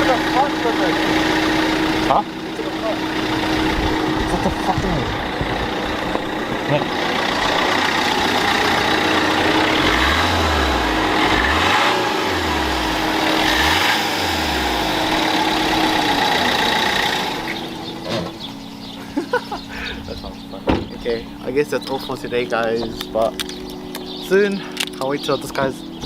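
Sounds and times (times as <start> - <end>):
diesel engine revving: 0.0 - 26.0.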